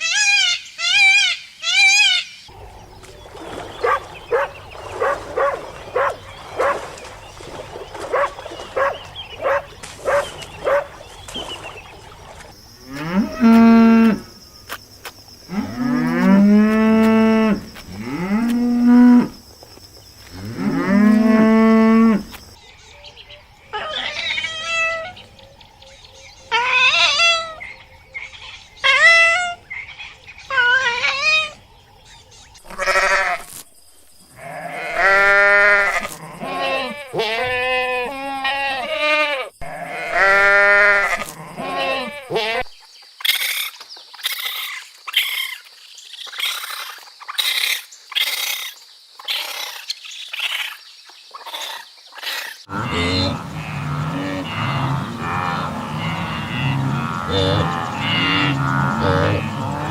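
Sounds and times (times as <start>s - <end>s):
cattle mooing: 3.8s - 6.8s, 8.1s - 10.9s, 52.7s - 59.9s.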